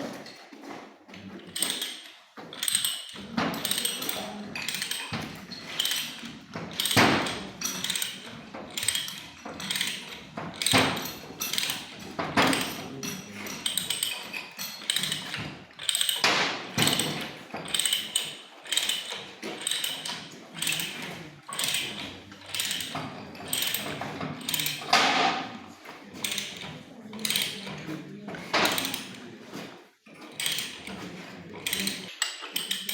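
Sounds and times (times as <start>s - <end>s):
hand tools striking metal pipe: 13.4s - 25.6s.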